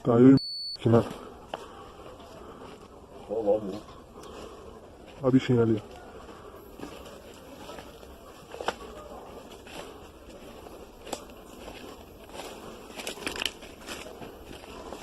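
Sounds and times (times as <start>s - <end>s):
low outdoor background: 0.0s - 15.0s
footsteps: 0.9s - 15.0s
faint clicks and crackles: 5.9s - 15.0s.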